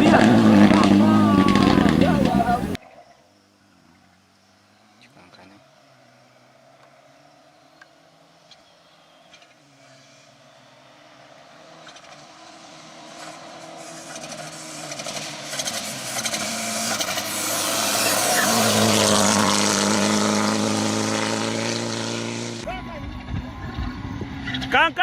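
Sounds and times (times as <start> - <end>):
rally car engine approaching: 0.0 - 2.8, 3.4 - 25.0
sharp engine crackles: 0.0 - 2.8, 11.7 - 25.0.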